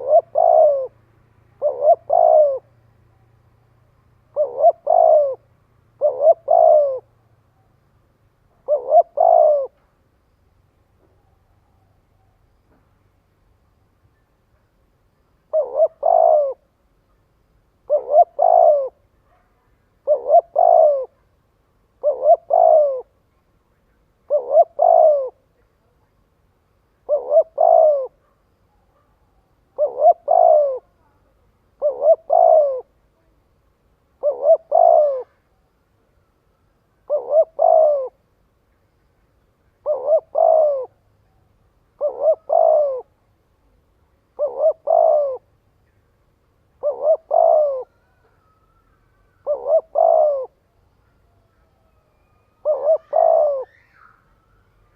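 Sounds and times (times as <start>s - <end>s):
dove cooing: 0.0s - 3.3s, 4.2s - 7.7s, 8.5s - 9.8s, 15.2s - 17.2s, 17.8s - 23.2s, 24.2s - 26.0s, 26.9s - 35.7s, 36.9s - 38.3s, 39.5s - 46.0s, 46.6s - 54.9s.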